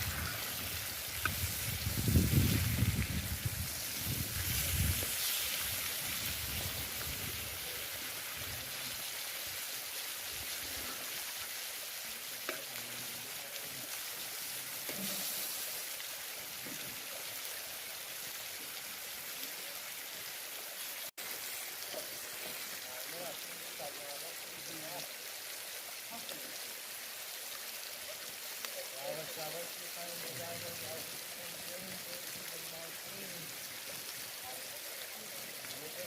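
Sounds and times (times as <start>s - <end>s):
fish sizzling in oil: 0.0s - 18.8s.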